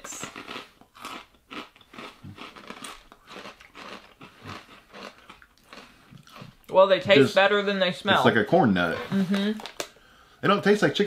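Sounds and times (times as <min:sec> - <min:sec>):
corn snack crunching: 0:00.0 - 0:06.6.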